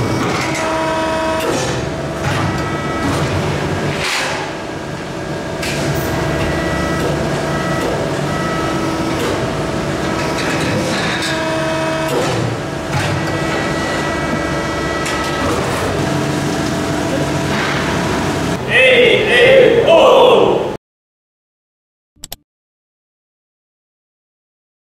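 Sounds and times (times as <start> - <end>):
press brake machine hum: 0.0 - 18.6.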